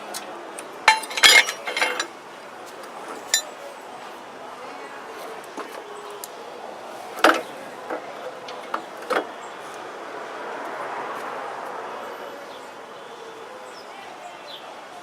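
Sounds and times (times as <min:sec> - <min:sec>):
sharp knocks and clinks: 0:00.8 - 0:02.1.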